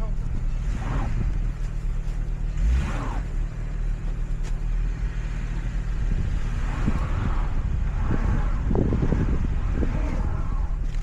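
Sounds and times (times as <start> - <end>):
car engine running: 0.0 - 11.0
road rumble: 0.0 - 11.0.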